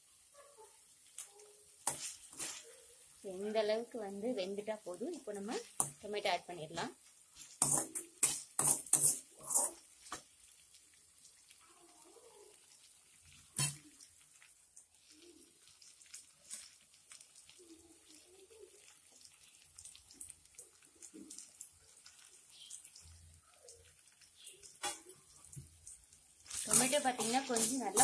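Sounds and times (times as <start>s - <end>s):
onions sizzling in oil: 0.0s - 28.0s
soft scraping: 1.9s - 2.9s.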